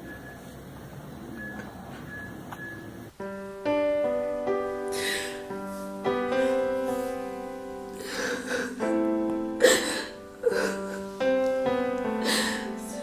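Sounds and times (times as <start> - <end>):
slow piano music: 3.2 - 13.0.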